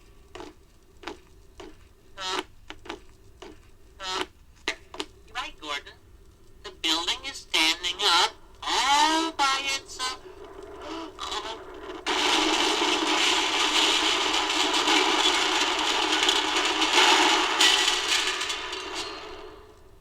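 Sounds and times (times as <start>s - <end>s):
brick building collapsing: 6.7s - 20.0s.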